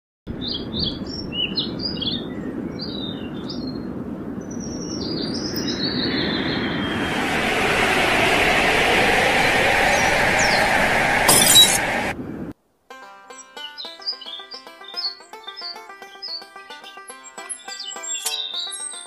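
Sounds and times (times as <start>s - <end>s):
small birds chirping: 0.4s - 6.9s, 13.5s - 19.0s
rushing noise: 5.6s - 12.5s.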